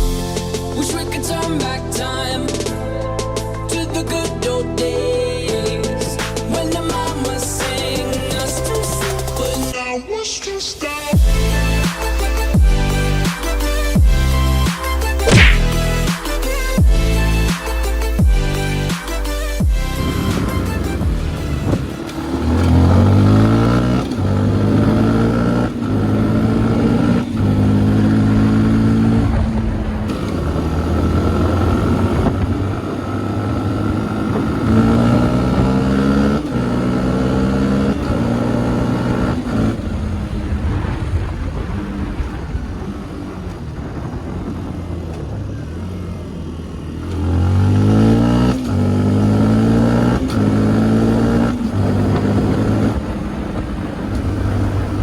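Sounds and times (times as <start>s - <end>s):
motorcycle engine accelerating through gears: 15.2s - 16.0s, 19.7s - 55.0s.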